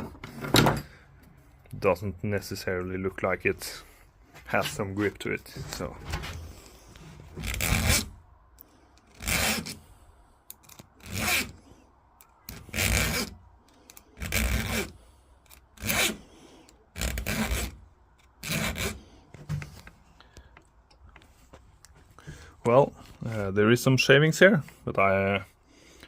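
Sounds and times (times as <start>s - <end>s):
file scraping chainsaw chain: 7.3s - 8.2s, 9.0s - 9.8s, 10.5s - 11.6s, 12.5s - 19.0s.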